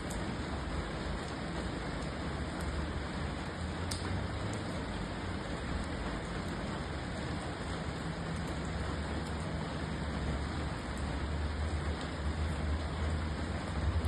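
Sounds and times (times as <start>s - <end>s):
steady rain hiss: 0.0s - 14.0s
faint drop ticks: 3.9s - 4.1s.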